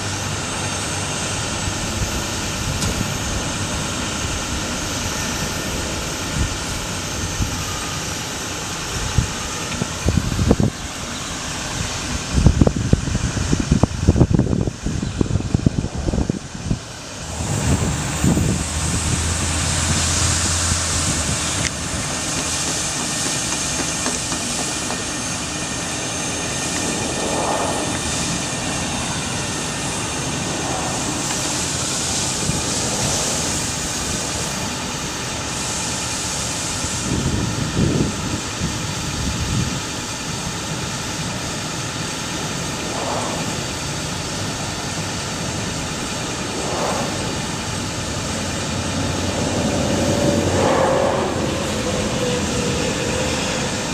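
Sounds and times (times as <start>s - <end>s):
truck engine running: 0.0s - 53.9s.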